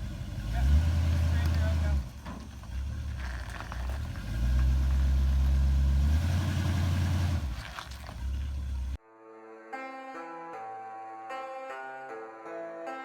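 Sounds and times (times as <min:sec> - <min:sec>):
truck engine humming: 0:00.0 - 0:09.0.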